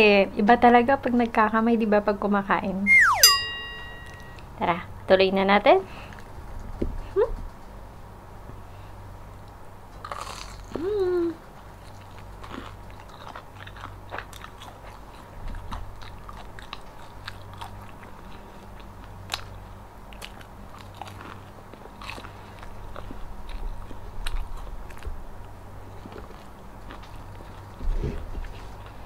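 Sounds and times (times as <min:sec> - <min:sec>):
crunchy chewing: 0:10.0 - 0:29.0.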